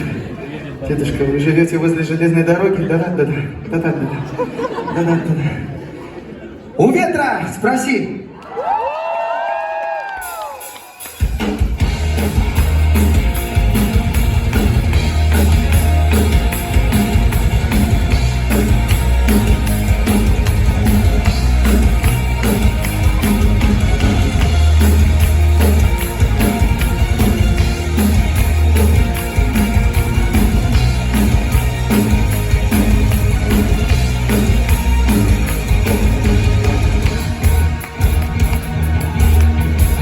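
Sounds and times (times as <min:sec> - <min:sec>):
drum kit beat: 0:10.2 - 0:40.0
rock band playing live: 0:10.2 - 0:40.0
heavy bass: 0:11.4 - 0:40.0.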